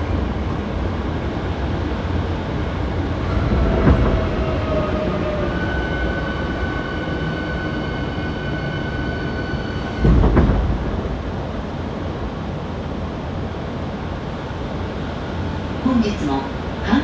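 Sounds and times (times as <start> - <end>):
train wheel rumble: 0.0 - 17.0
low thump: 9.8 - 12.4.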